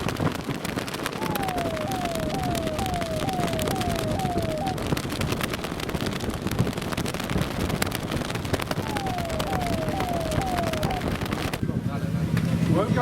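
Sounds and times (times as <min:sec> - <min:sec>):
sharp pops crackling: 0:00.0 - 0:11.6
motorcycle convoy: 0:00.0 - 0:13.0
electronic siren falling tone: 0:01.0 - 0:05.2, 0:08.7 - 0:11.6.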